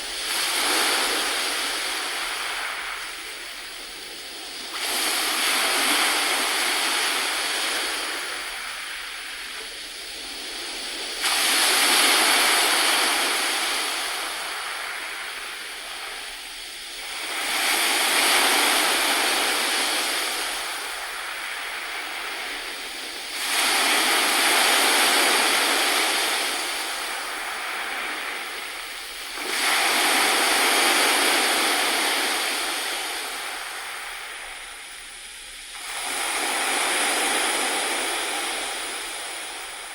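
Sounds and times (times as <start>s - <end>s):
sea waves washing onto shore: 0.0s - 39.9s.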